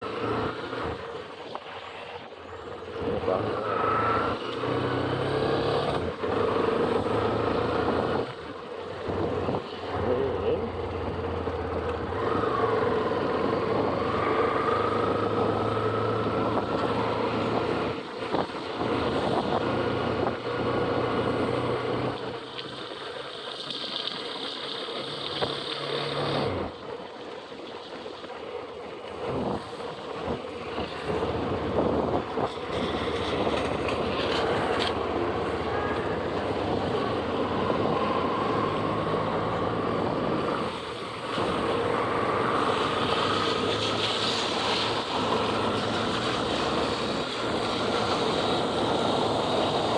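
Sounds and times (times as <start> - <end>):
wind and road noise: 0.0 - 49.9
motorcycle engine running: 2.2 - 21.6.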